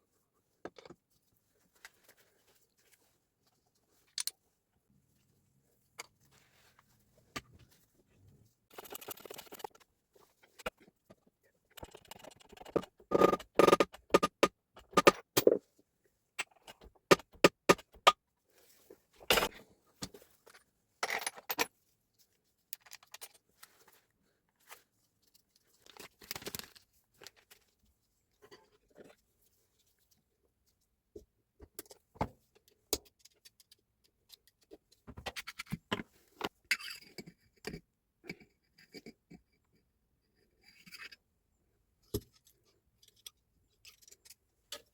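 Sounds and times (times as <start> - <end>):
small parts and tools clinking: 19.2 - 21.8, 42.1 - 44.9.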